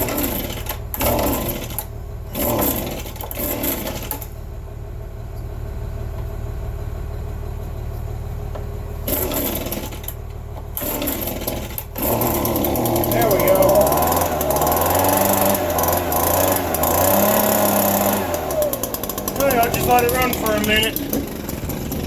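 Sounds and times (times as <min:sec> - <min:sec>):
chainsaw engine revving and idling: 0:00.0 - 0:04.5, 0:09.0 - 0:22.0.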